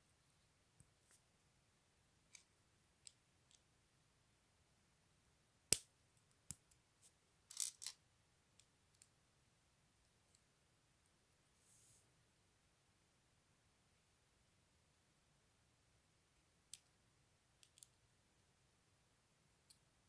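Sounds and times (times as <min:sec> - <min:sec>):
plastic bricks clicking together: 0:07.5 - 0:07.9.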